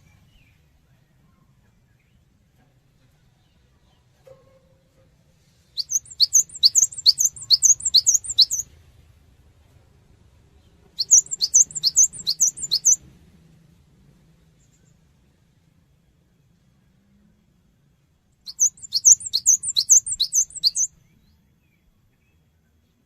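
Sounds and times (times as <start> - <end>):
bird singing whistled notes: 5.8 - 8.7, 11.0 - 13.0, 18.5 - 22.4.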